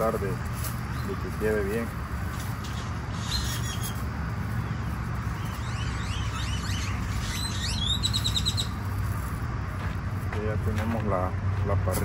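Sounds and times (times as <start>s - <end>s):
steady low rumble: 0.0s - 12.0s
birds chirping and whistling: 0.8s - 9.3s.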